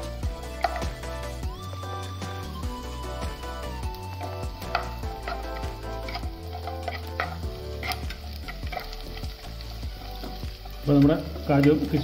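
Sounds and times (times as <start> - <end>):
background music with bass: 0.0 - 12.0
nuts sizzling in a pan: 0.0 - 12.0
spatula scraping and clicking: 0.6 - 1.0, 4.6 - 9.4.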